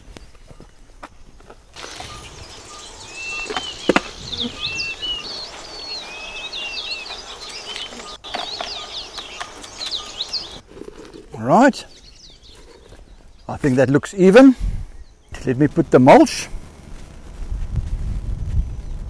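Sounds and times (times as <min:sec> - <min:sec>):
birds chirping and whistling: 0:01.8 - 0:13.7.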